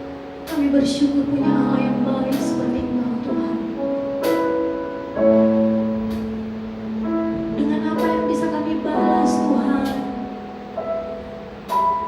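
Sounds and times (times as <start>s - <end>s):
sustained keyboard chords: 0.0s - 12.0s
person singing: 0.5s - 4.4s, 7.5s - 10.6s.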